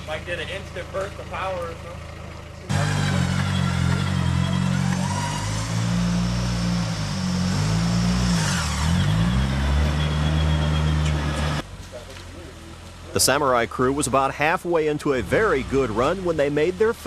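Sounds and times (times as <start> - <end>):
engine running hard under load: 0.0 - 11.6.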